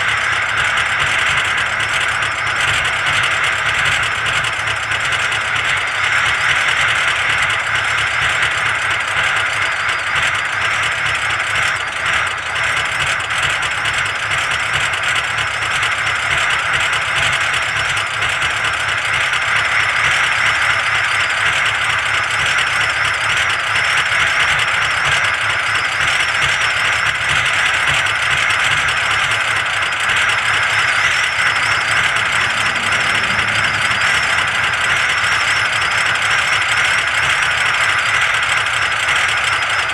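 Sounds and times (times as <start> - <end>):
diesel engine idling: 26.1 - 39.9.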